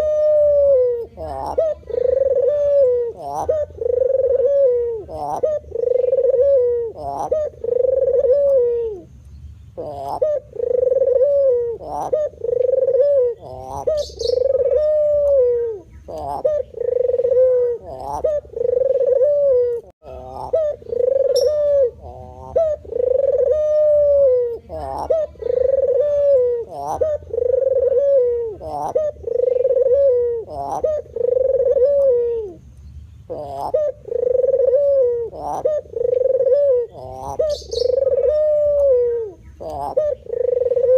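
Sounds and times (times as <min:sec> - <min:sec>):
dove cooing: 0:00.0 - 0:09.1, 0:09.8 - 0:32.7, 0:33.3 - 0:40.9.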